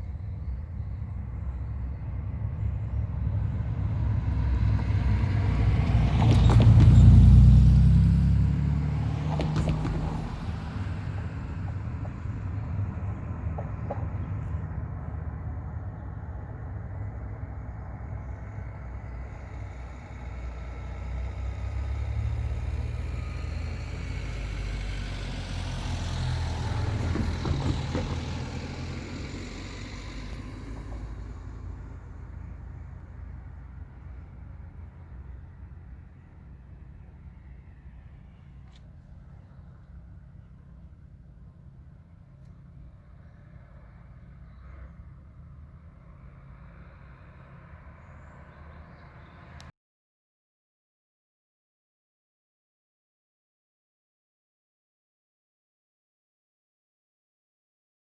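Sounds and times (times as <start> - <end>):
vehicles passing by: 0.0 - 49.7.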